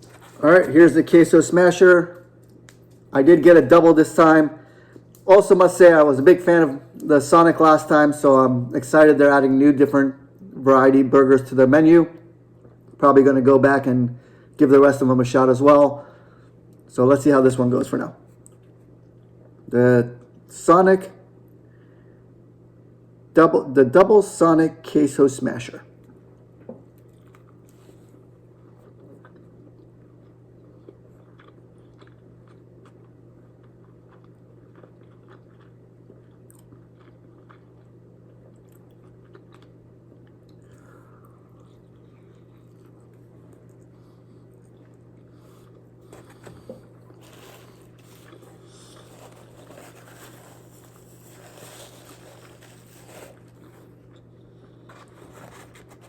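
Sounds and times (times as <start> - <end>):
steady low hum: 0.0 - 56.0
man chewing: 27.0 - 56.0.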